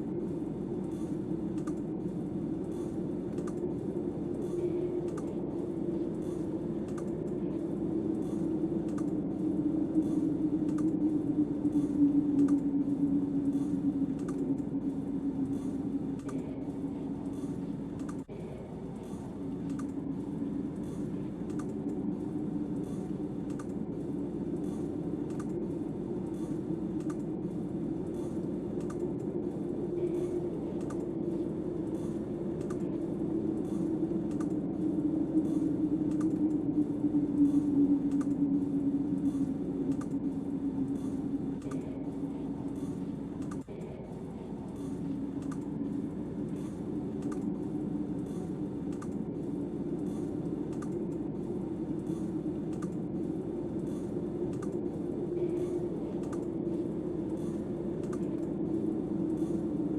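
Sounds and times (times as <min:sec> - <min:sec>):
howling snowstorm wind: 0:00.0 - 0:59.9
faint light clicks: 0:19.5 - 0:20.0.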